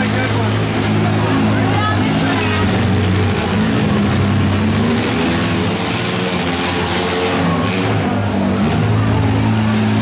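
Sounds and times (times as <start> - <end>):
minivan engines revving: 0.0 - 10.0.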